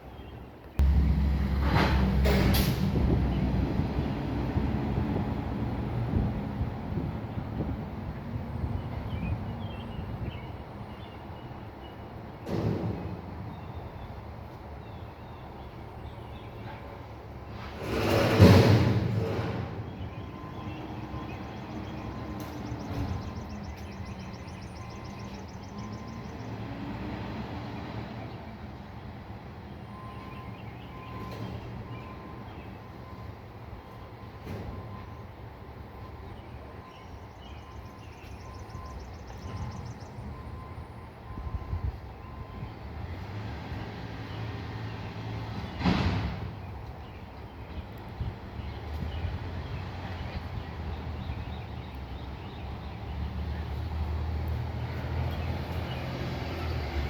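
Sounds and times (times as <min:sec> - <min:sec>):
truck diesel engine running: 0:00.8 - 0:07.0
truck engine running under load: 0:00.8 - 0:14.8, 0:15.4 - 0:57.0.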